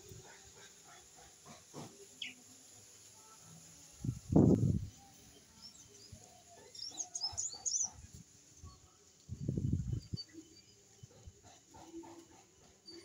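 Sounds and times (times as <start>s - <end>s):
small bird chirping: 5.0s - 8.1s.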